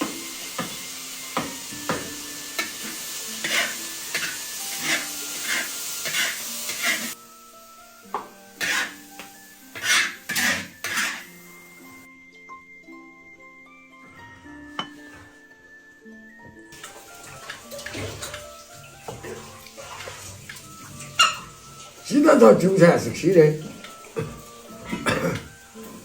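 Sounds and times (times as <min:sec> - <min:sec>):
eggs sizzling in oil: 0:00.0 - 0:13.8, 0:14.4 - 0:26.0
background music with held tones: 0:00.0 - 0:26.0
metal spatula scraping a wok: 0:02.6 - 0:07.2, 0:08.6 - 0:09.1, 0:09.7 - 0:11.4.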